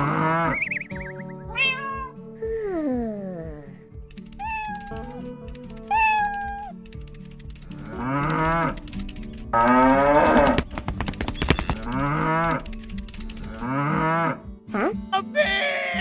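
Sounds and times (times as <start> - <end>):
cow mooing: 0.0 - 0.6, 7.8 - 8.8, 9.6 - 10.6, 11.7 - 12.7, 13.4 - 14.4.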